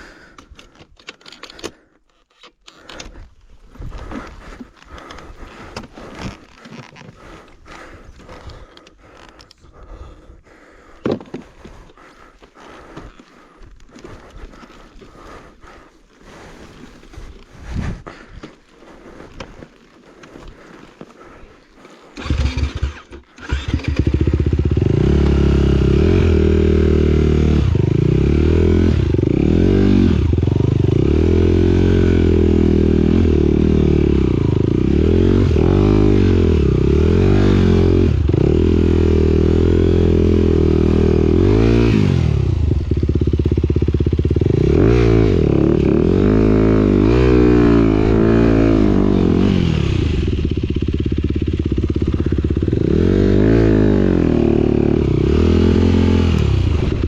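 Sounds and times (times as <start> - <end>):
motorcycle engine revving: 22.2 - 57.0.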